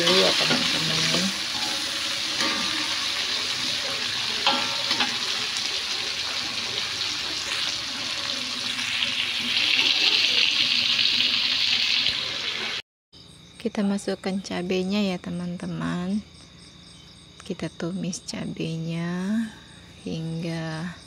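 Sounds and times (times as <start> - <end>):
shrimp sizzling in hot oil: 0.0 - 12.8
metal spatula clinking on wok: 4.4 - 5.2.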